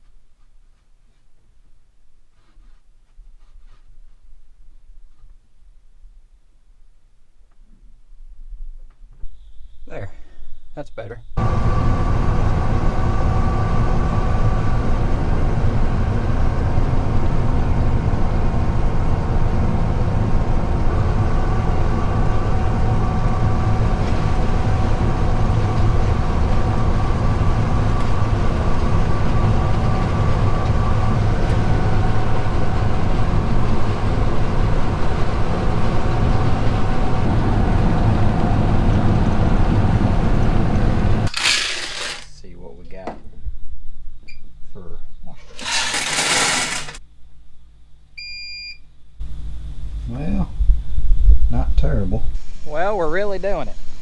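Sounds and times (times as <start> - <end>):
faint drive whines: 8.8 - 54.0
diesel machinery drone: 11.4 - 42.2, 49.2 - 52.0.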